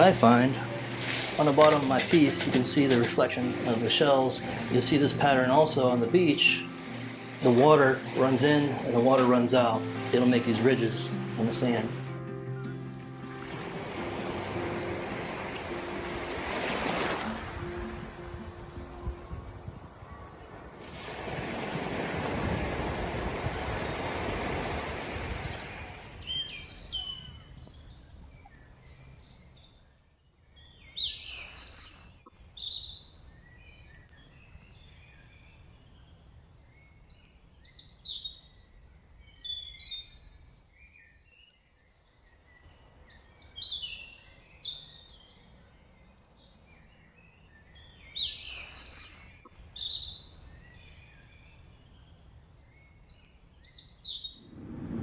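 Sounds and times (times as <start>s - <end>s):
rushing noise: 13.5s - 19.5s, 54.4s - 55.0s
small birds singing: 25.4s - 54.6s.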